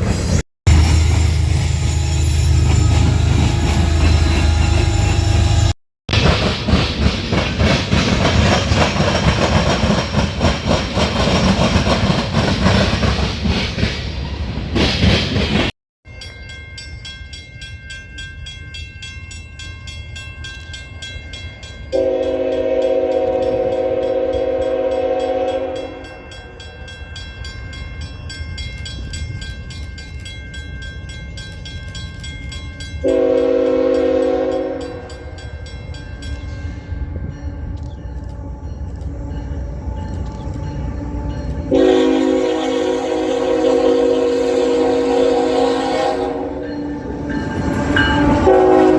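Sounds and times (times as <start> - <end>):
train wheels rumbling on rail: 0.0 - 15.7, 19.3 - 48.9
locomotive air horn: 21.9 - 26.1, 33.0 - 35.0, 40.8 - 48.9.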